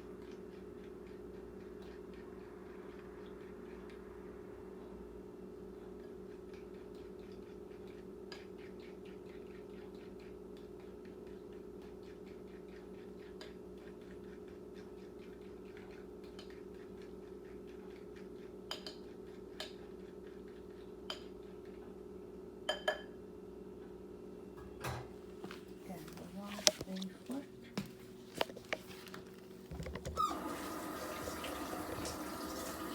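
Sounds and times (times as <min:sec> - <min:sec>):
microwave oven humming: 0:19.4 - 0:26.5, 0:27.3 - 0:32.9.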